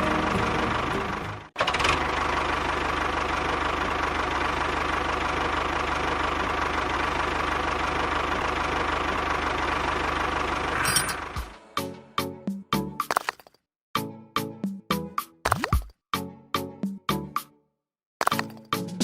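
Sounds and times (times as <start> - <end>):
machine engine running: 0.0 - 11.6.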